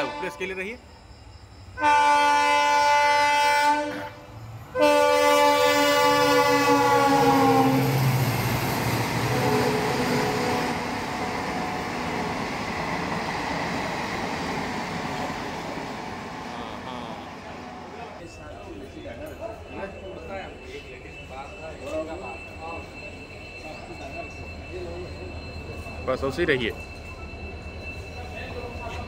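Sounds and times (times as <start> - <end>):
locomotive horn blasts: 0.0 - 0.6, 1.8 - 7.9, 9.4 - 11.2
train coaches rumbling past: 0.0 - 29.0.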